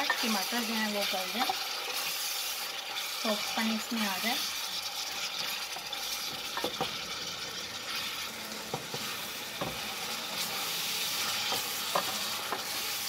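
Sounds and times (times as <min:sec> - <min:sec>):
vegetables sizzling in oil: 0:00.0 - 0:13.0
wooden spoon knocking on pot: 0:08.7 - 0:09.8.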